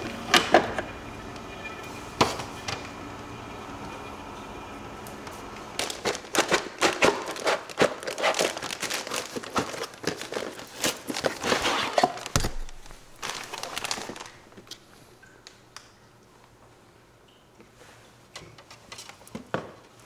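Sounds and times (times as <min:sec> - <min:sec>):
crinkling and rustling by hand: 0:00.0 - 0:15.9.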